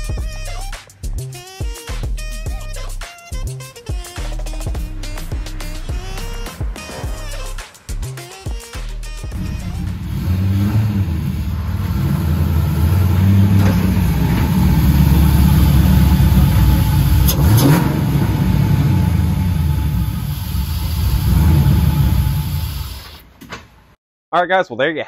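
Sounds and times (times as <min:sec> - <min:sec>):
car engine with throttle blips: 0:09.2 - 0:23.4.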